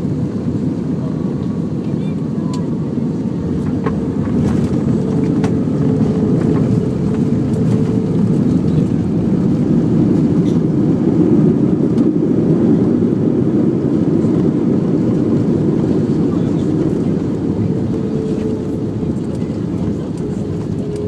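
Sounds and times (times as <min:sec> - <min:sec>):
airplane cabin engine rumble: 0:00.0 - 0:21.0.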